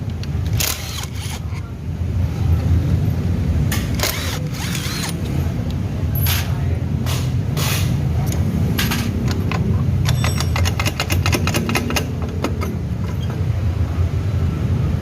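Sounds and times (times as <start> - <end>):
metal tools clinking: 8.8 - 13.5.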